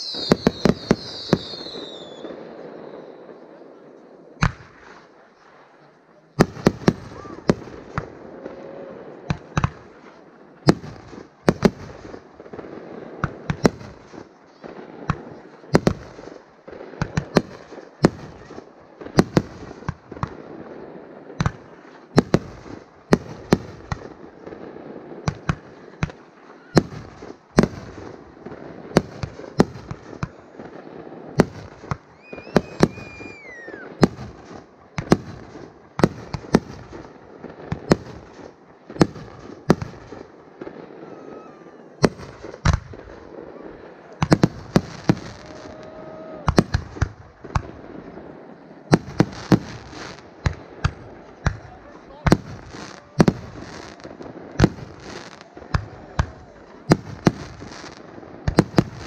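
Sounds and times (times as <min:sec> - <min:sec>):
falling whistle: 0:00.0 - 0:03.1, 0:32.1 - 0:34.0
background hiss: 0:00.0 - 0:59.0
fireworks bursting: 0:00.0 - 0:59.0.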